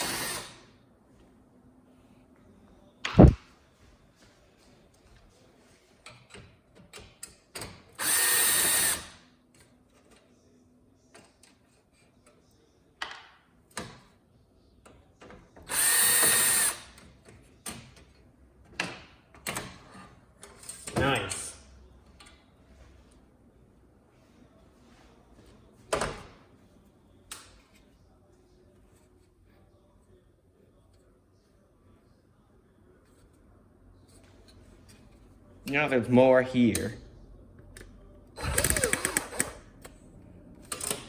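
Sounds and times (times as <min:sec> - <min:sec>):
power drill running: 0:00.0 - 0:00.6, 0:08.0 - 0:09.1, 0:15.7 - 0:16.8, 0:38.4 - 0:39.6
sharp knock: 0:03.1 - 0:03.4.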